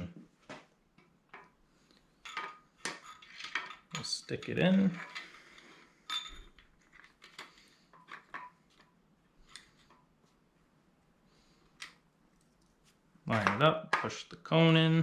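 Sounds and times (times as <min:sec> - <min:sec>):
light metallic clicks and clinks: 0:02.2 - 0:08.6.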